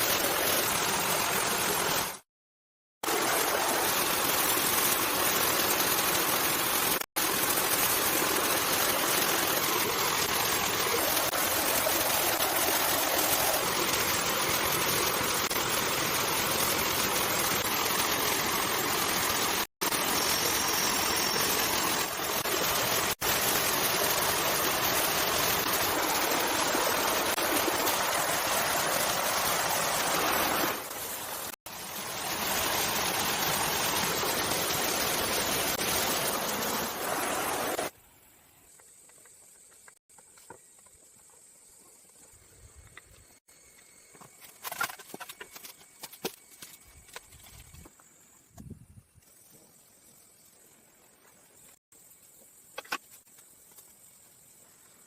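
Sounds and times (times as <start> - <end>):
running water rushing: 0.0 - 2.2, 3.0 - 38.0.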